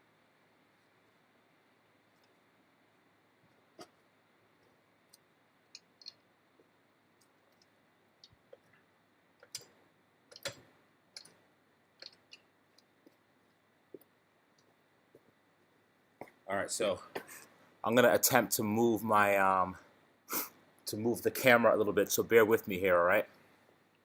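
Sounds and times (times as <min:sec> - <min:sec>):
faint clicks and light taps: 0:03.4 - 0:11.4, 0:12.0 - 0:16.4.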